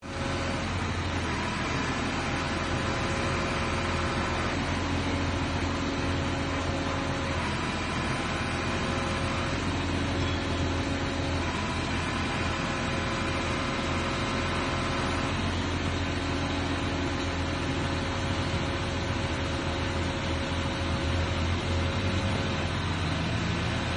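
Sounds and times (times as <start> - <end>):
truck engine humming: 0.0 - 23.9
crane hydraulics whining: 0.1 - 23.9.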